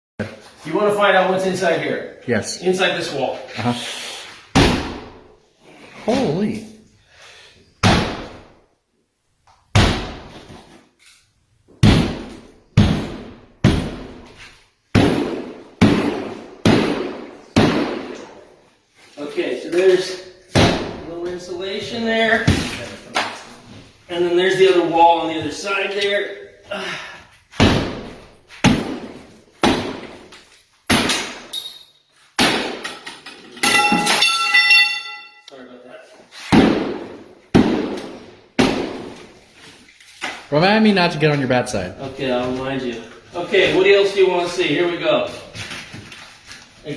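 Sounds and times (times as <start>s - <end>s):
hammer smashing drywall: 4.5s - 5.2s, 7.8s - 8.5s, 9.7s - 10.6s, 11.8s - 18.4s, 20.5s - 21.1s, 27.6s - 31.5s, 32.4s - 34.4s, 36.5s - 39.3s
ringing tone: 33.6s - 35.5s.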